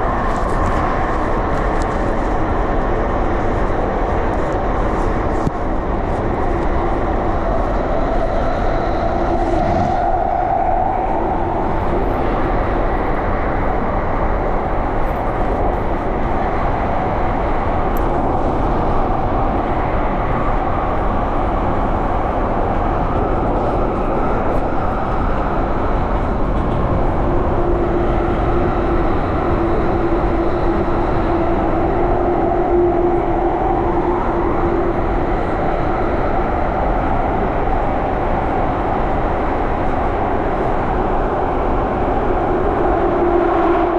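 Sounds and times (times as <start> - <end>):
train wheels rumbling: 0.0 - 43.9
humming tone: 7.3 - 12.1, 27.0 - 36.4, 42.2 - 43.9.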